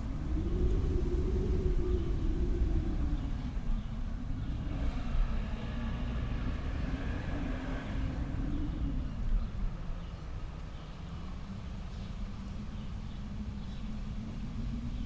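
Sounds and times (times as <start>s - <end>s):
wind howling: 0.0s - 10.4s
deep steady rumble: 0.0s - 15.0s.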